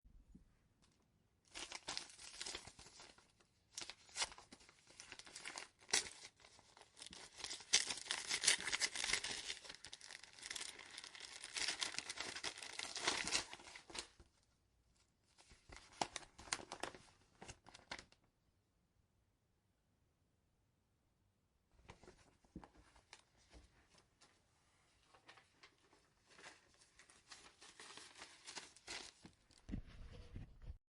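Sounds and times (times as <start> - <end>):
paper envelope tearing: 3.8 - 14.1, 26.4 - 29.4.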